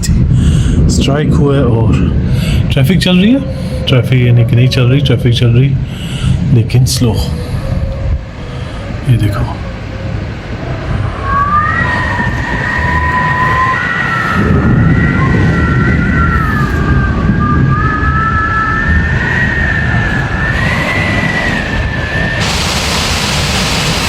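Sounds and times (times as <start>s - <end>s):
strong wind: 0.0s - 24.0s
wind whistling through window: 0.0s - 24.0s
heavy rain: 18.8s - 24.0s.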